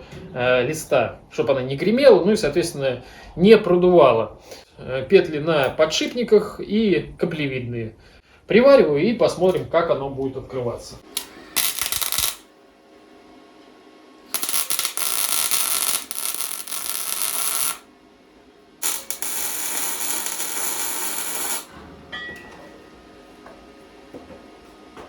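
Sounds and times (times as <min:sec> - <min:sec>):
arc welder crackling: 0:11.0 - 0:12.5, 0:14.3 - 0:17.9, 0:18.8 - 0:21.8.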